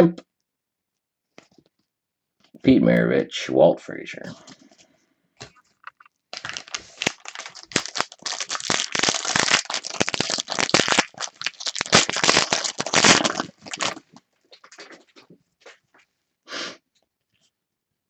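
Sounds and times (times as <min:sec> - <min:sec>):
cards being handled: 0:05.4 - 0:14.0
foil wrapper tearing and crinkling: 0:06.3 - 0:15.2.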